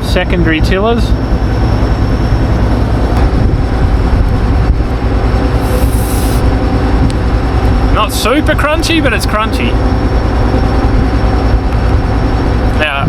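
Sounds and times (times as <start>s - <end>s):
combine harvester running: 0.0s - 13.0s
brief hiss: 5.6s - 6.5s.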